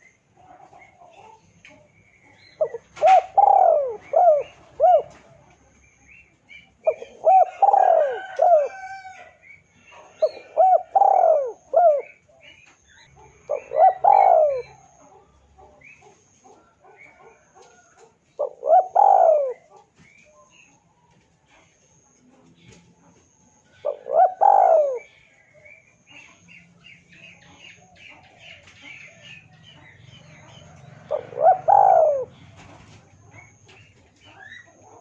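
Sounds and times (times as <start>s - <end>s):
dove cooing: 0.0s - 20.8s, 23.2s - 26.4s, 27.4s - 35.0s
small birds chirping: 0.0s - 35.0s.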